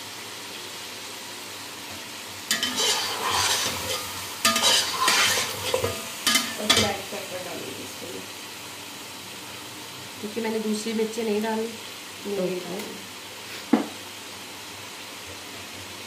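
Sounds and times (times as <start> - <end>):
chicken sizzling in a pot: 0.0 - 16.0
spatula stirring food: 2.5 - 6.9.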